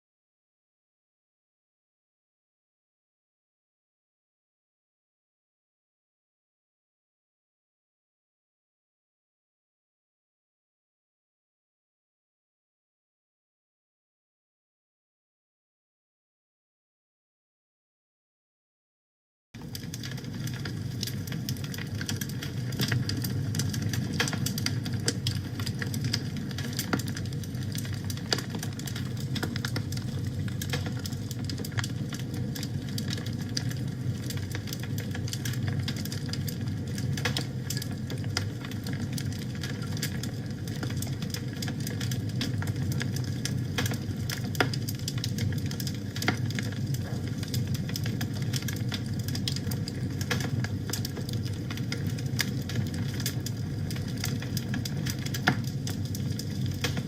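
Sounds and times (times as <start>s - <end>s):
wood fire crackling and popping: 19.6s - 57.0s.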